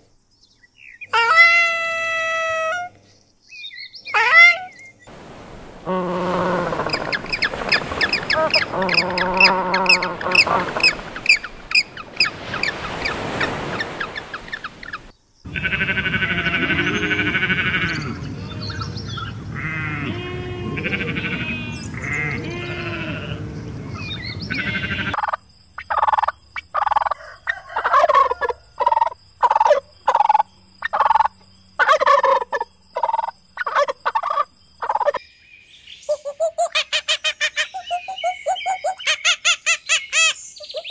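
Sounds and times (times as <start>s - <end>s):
short repeated animal calls: 5.8s - 25.2s
penguins braying: 5.9s - 11.3s, 15.5s - 25.2s
sheep bleating: 15.5s - 25.2s.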